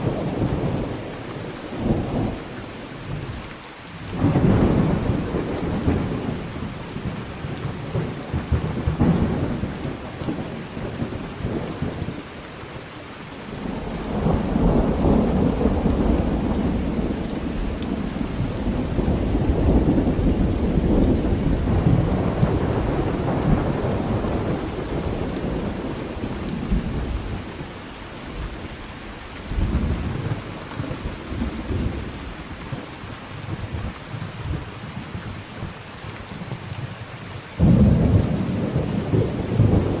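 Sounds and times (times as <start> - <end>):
steady rain: 0.0 - 40.0
rolling thunder: 13.6 - 27.7, 37.6 - 40.0.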